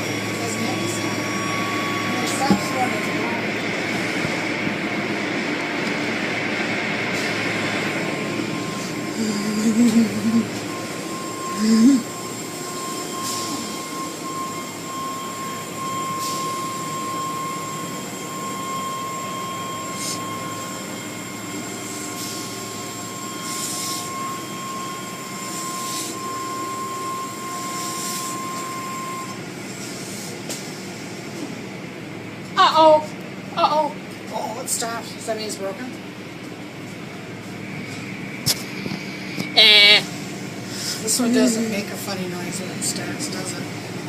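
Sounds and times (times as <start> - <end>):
car wash motor whine: 0.0 - 44.0.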